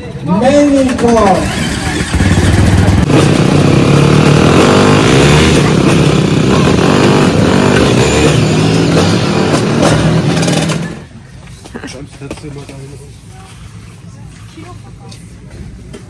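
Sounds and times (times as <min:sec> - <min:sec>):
motorcycle engines revving: 0:00.2 - 0:11.2.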